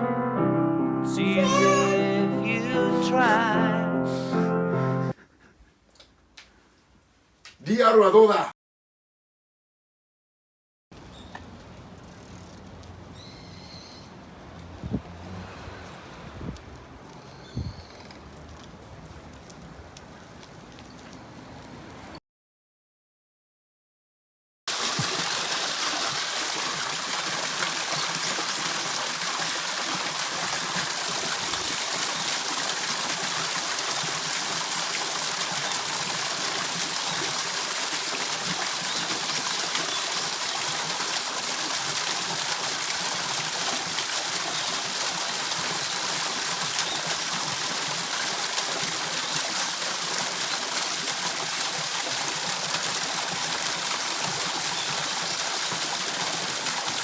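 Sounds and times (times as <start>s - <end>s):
waterfall rushing: 1.2s - 4.4s.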